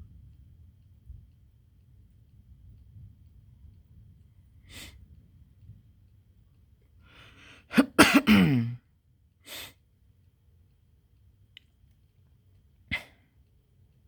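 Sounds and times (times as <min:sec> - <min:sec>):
faint low rumble: 0:00.0 - 0:07.0
person breathing in: 0:07.0 - 0:07.7
person coughing: 0:07.7 - 0:08.8, 0:12.9 - 0:13.2.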